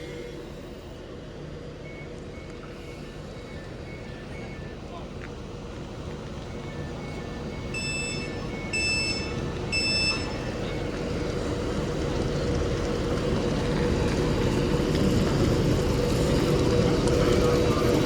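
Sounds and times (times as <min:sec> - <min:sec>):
electric train rumble and hum: 0:00.0 - 0:18.0
electronic warning beeps: 0:01.8 - 0:05.1, 0:06.4 - 0:11.4.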